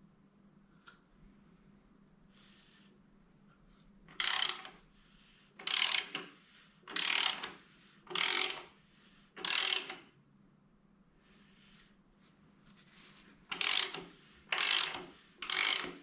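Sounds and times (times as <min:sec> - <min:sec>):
ratchet wrench clicking: 0:04.1 - 0:04.8, 0:05.6 - 0:06.3, 0:06.9 - 0:08.7, 0:09.4 - 0:10.0, 0:13.5 - 0:16.0.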